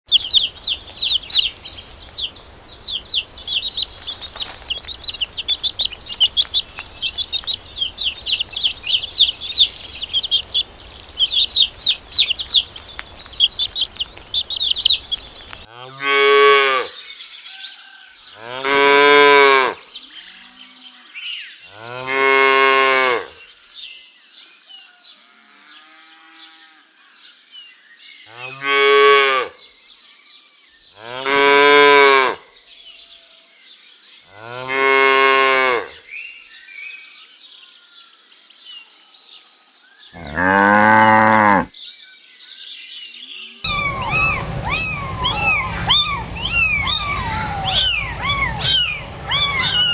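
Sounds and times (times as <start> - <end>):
faint bird chirps: 0.0 - 15.7, 43.7 - 49.9
cattle mooing: 40.2 - 41.7, 43.7 - 49.9.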